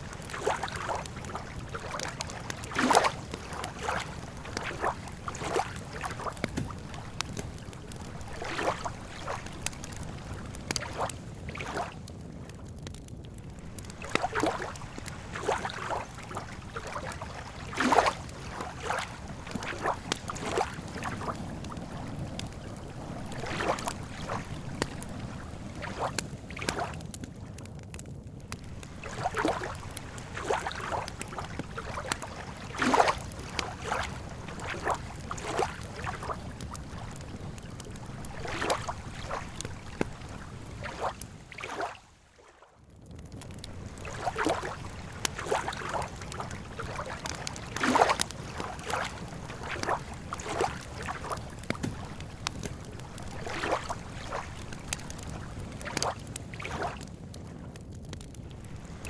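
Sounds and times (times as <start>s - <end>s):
lapping water: 0.0s - 11.9s, 44.0s - 57.0s
campfire popping and crackling: 0.0s - 42.1s, 42.8s - 59.0s.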